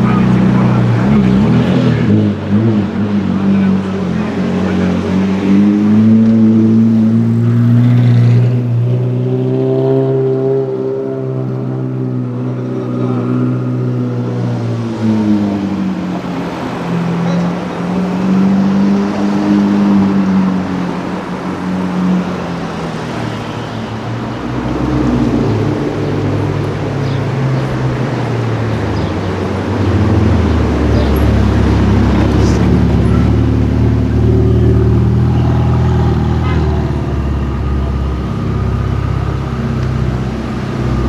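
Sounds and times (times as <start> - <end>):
sports car engine accelerating: 0.0 - 41.0
deeper engine note: 10.0 - 41.0.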